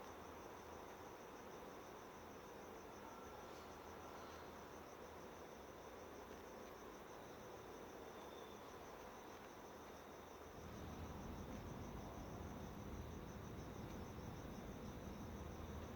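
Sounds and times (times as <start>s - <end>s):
low background rumble: 10.6s - 15.9s.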